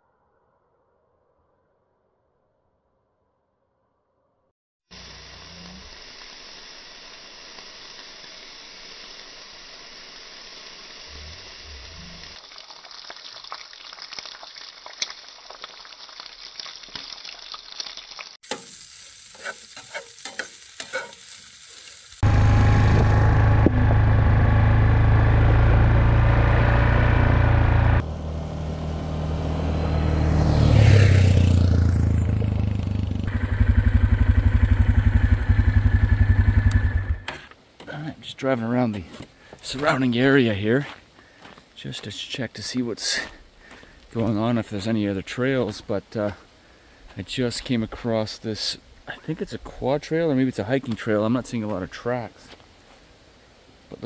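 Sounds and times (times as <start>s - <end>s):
food sizzling in a frying pan: 5.0s - 22.2s
vehicle engine running: 22.2s - 37.3s.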